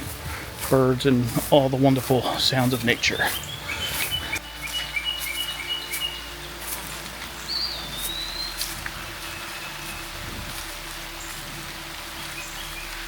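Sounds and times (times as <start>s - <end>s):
light rain hiss: 0.0s - 13.0s
raindrops ticking: 0.0s - 13.0s
birds whistling: 2.2s - 6.8s, 7.4s - 11.4s.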